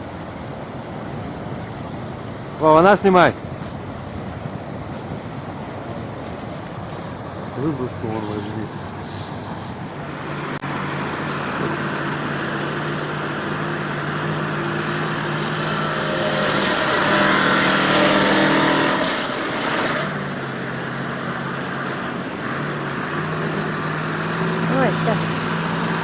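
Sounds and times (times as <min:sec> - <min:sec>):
truck engine running under load: 0:03.7 - 0:26.0
loud rushing noise: 0:08.8 - 0:26.0.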